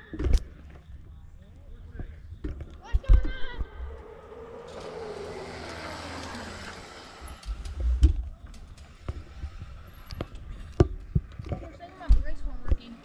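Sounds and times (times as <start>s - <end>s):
low rumbling: 1.4s - 11.4s
vehicle passing by: 3.6s - 8.2s.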